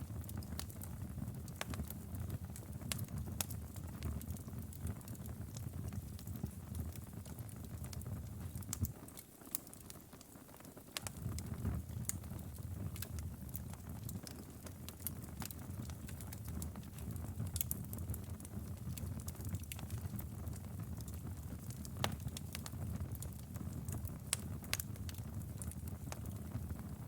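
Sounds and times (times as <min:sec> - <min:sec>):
wood fire pops and snaps: 0:00.1 - 0:27.0
low rush of flames: 0:11.0 - 0:27.0.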